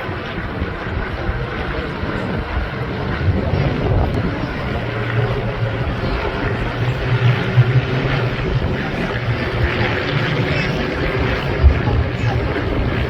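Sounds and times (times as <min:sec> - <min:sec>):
propeller aircraft flying past: 0:00.0 - 0:13.0.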